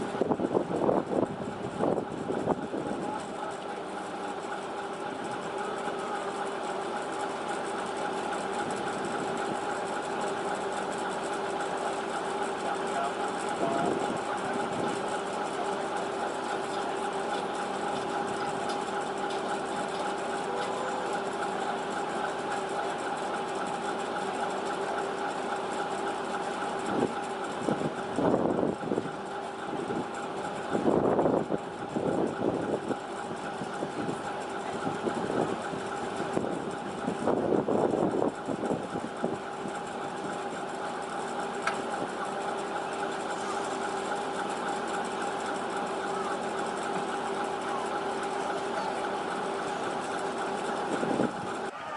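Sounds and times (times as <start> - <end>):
engine idling hum: 0.0 - 51.9.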